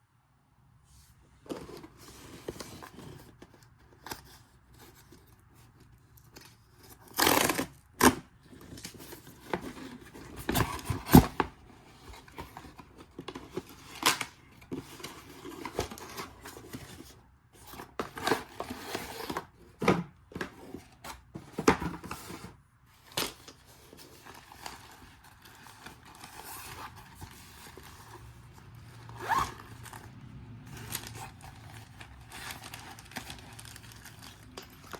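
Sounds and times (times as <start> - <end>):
rustling and crinkling: 0.9 - 34.9.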